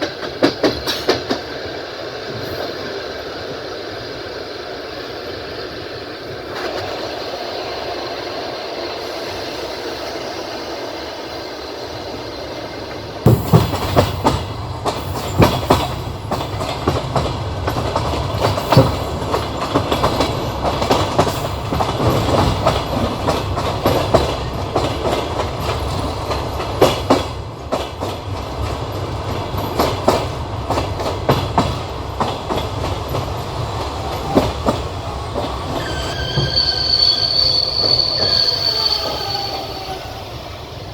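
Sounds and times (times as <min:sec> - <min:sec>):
wheels clacking over rail joints: 0:00.0 - 0:02.4, 0:12.9 - 0:36.8
train wheels rumbling on rails: 0:00.0 - 0:40.9.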